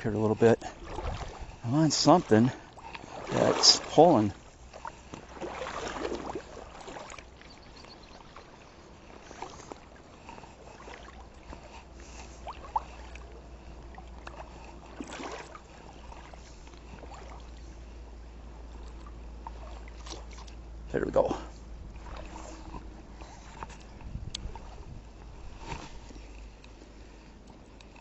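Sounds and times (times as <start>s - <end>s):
water sloshing around kayak: 0.0s - 28.0s
water splash: 0.6s - 8.4s, 14.0s - 17.6s, 18.8s - 20.6s, 22.0s - 22.6s.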